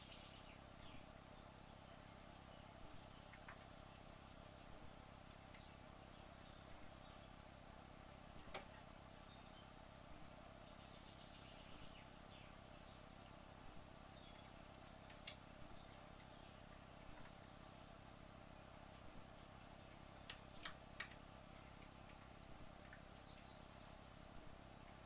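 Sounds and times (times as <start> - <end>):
small clicks: 3.3 - 3.8, 8.4 - 8.8, 15.0 - 16.4, 20.2 - 23.5.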